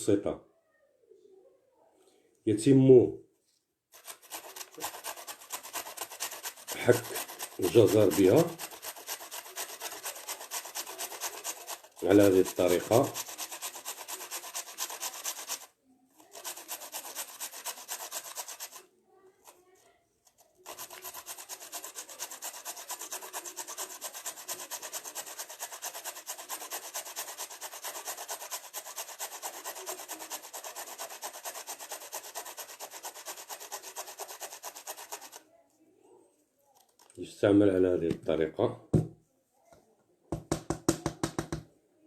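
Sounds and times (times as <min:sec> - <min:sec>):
carrot grated on a grater: 0:04.0 - 0:18.8, 0:20.6 - 0:35.4.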